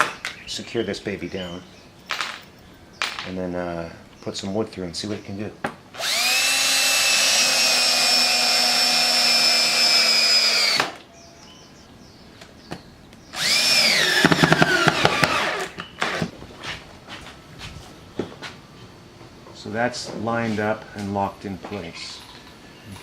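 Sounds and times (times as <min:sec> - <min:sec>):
drill running: 0:06.0 - 0:11.0, 0:13.4 - 0:16.3.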